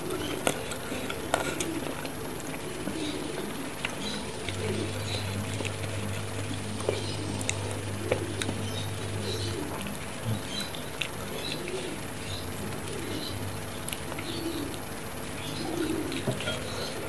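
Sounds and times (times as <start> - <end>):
chewing and sucking mouth sounds: 0.0 - 12.0
bird cooing: 0.0 - 17.0
low steady hum: 0.0 - 17.0.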